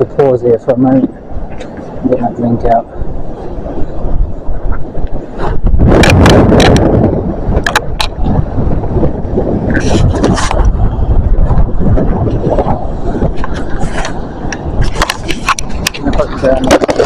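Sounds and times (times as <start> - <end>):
wind buffeting microphone: 0.0 - 17.0
rustling and clicking handling noise: 13.4 - 17.0.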